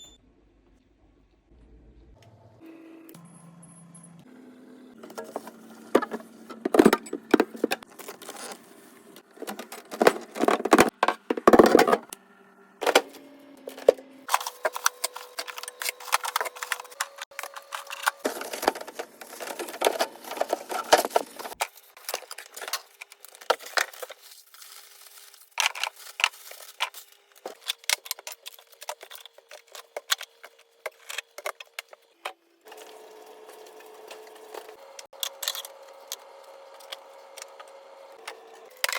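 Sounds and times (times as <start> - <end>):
items clattering and clinking: 5.0 - 12.1, 12.8 - 32.1.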